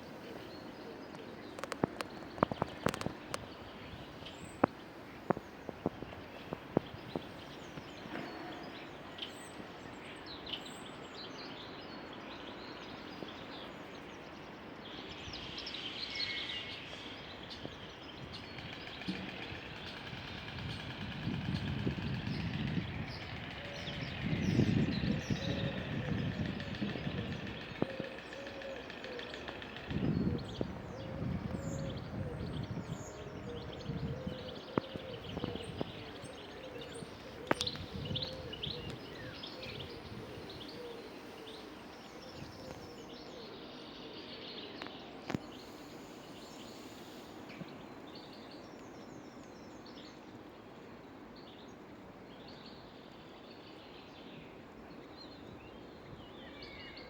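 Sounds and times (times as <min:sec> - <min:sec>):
small birds chirping: 0:00.0 - 0:14.4, 0:21.5 - 0:49.9
steady background hiss: 0:27.5 - 0:57.0.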